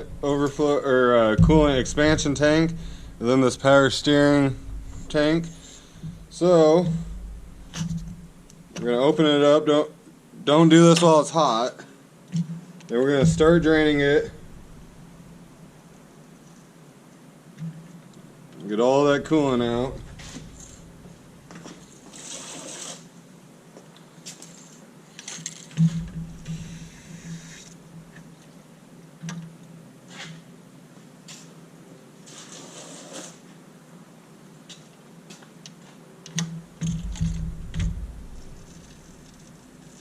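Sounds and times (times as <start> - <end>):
low handling bumps: 0.0 - 9.0, 12.4 - 15.8, 18.9 - 21.6, 25.8 - 28.2, 36.5 - 39.6.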